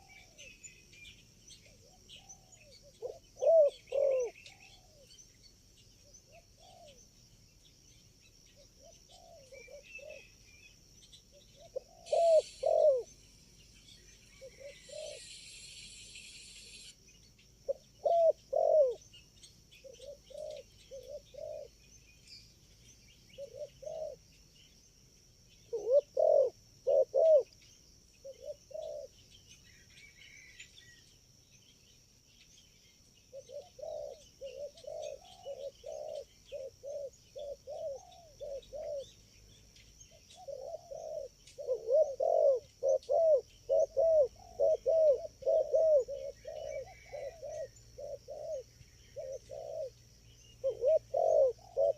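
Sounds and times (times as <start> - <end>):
doves cooing: 0.0 - 0.6, 1.6 - 5.1, 11.6 - 13.1, 14.3 - 15.3, 17.6 - 19.0, 19.8 - 21.8, 23.4 - 24.2, 25.7 - 27.6, 28.2 - 29.2, 33.3 - 39.2, 40.1 - 50.0, 50.6 - 51.9.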